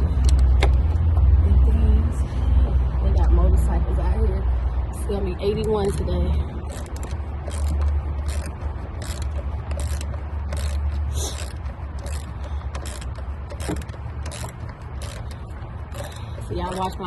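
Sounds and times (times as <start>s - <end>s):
ratchet wrench clicking: 0.2s - 1.0s, 5.5s - 17.0s.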